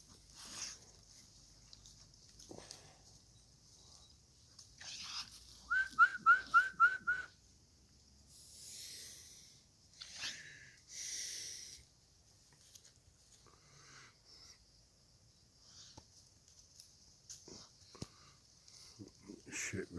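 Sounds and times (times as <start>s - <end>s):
person whistling loud notes: 5.7s - 7.3s
short breathy hissing: 8.3s - 11.9s.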